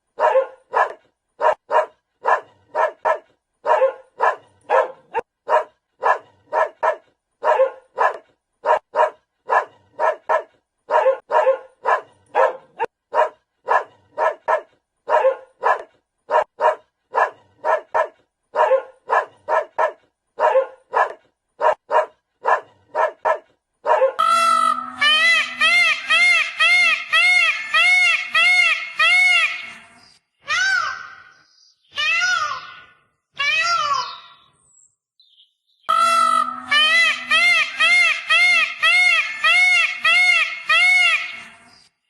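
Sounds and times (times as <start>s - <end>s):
dog barking: 0.2s - 24.2s
drawn-out wavering sound: 24.2s - 27.5s, 35.9s - 39.2s.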